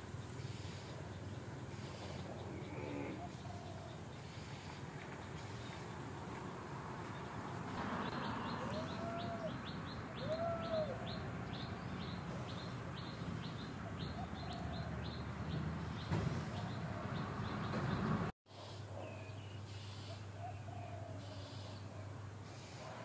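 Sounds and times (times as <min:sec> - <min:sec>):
bird rising-and-falling calls: 0:08.1 - 0:11.7.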